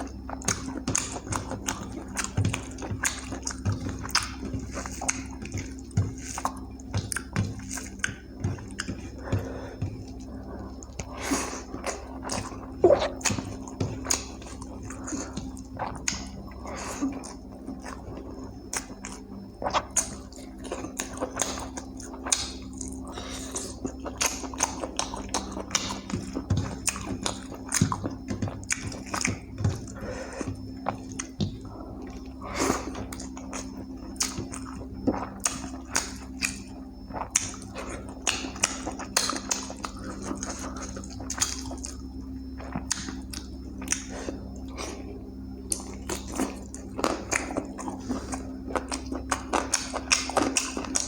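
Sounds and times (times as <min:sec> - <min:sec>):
steady low hum: 0:00.0 - 0:51.0
wet chewing and mouth smacks: 0:00.0 - 0:51.0.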